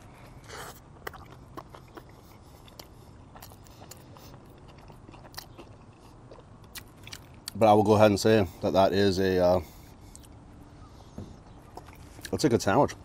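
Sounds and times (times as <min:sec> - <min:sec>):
person chewing: 0:00.0 - 0:07.6, 0:09.8 - 0:10.4, 0:11.5 - 0:12.4.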